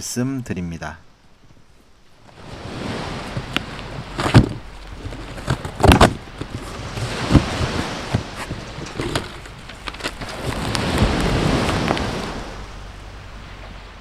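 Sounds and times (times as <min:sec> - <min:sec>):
ocean waves: 0:01.3 - 0:14.0
firewood crackling and popping: 0:02.2 - 0:12.6.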